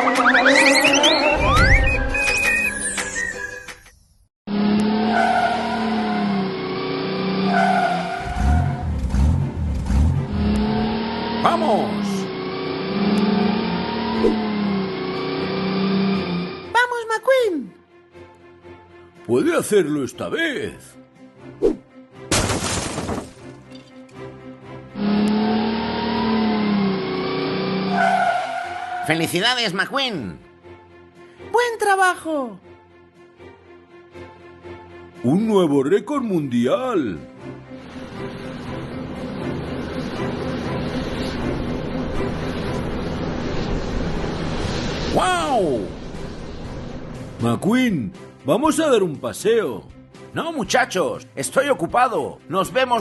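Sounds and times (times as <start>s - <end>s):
race car engine drone: 0.0s - 1.9s, 4.5s - 16.7s, 24.8s - 29.2s, 37.8s - 47.4s
background music: 6.1s - 53.0s.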